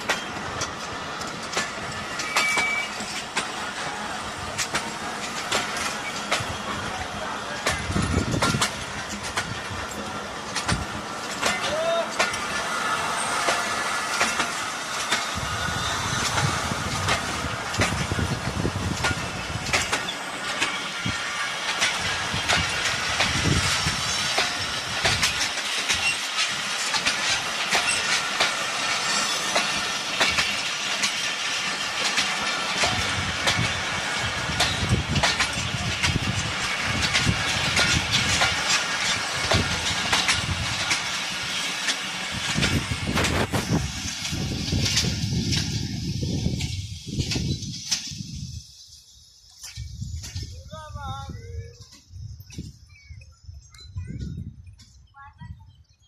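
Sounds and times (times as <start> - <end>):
wheels clattering over rail joints: 0.0 - 50.9
passenger train rumbling past: 0.0 - 52.8.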